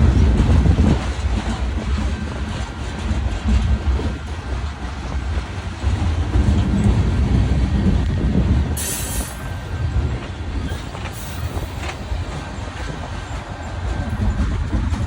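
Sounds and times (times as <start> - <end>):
freight train rumbling: 0.0 - 15.0
high wheel squeal: 8.8 - 9.7.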